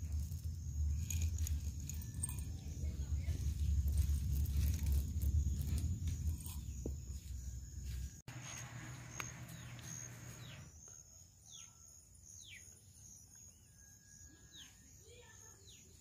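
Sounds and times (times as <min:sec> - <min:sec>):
low rumble: 0:00.0 - 0:07.2
high-pitched insect trill: 0:00.0 - 0:16.0.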